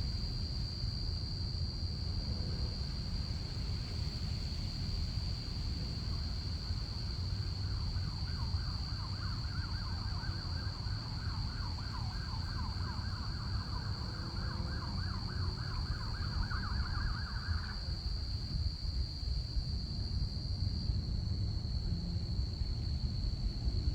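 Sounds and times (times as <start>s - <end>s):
crickets trilling: 0.0s - 23.9s
distant siren yelping: 8.8s - 18.0s.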